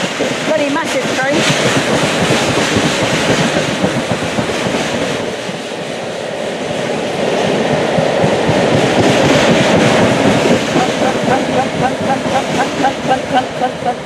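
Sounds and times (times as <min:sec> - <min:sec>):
wheels clattering over rail joints: 0:00.0 - 0:05.6
freight train wagons rolling: 0:00.0 - 0:14.0.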